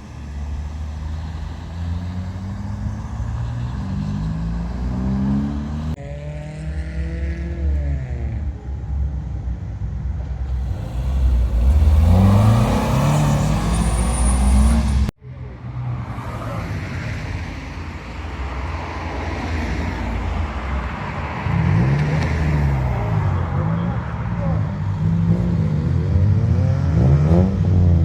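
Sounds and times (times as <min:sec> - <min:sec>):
car engines revving: 0:00.0 - 0:15.2, 0:18.4 - 0:28.0.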